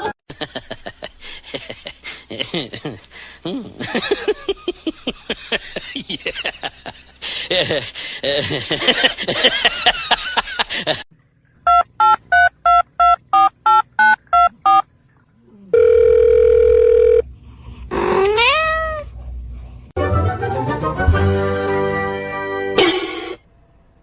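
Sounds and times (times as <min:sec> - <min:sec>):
steady telephone tone: 0:15.7 - 0:17.2
cat meowing: 0:18.1 - 0:19.1.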